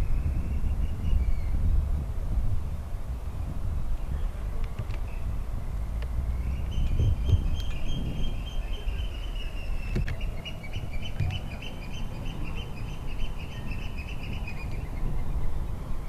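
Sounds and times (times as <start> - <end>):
bird chirping rapidly: 6.3 - 15.3.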